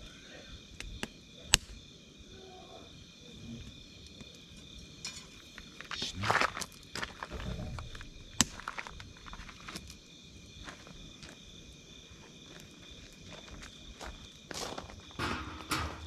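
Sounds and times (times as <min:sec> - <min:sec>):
night insects chirping: 0:00.0 - 0:16.0
campfire crackling and popping: 0:00.6 - 0:02.0, 0:03.6 - 0:14.5.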